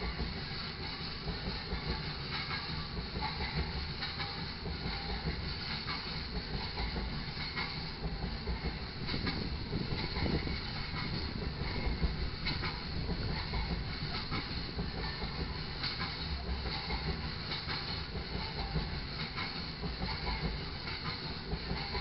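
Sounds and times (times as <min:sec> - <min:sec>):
steel wheels rumbling on rail: 0:00.0 - 0:22.0.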